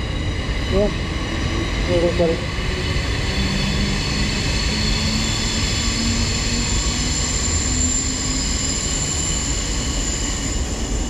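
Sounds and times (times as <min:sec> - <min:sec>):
underground train rumbling: 0:00.0 - 0:11.0.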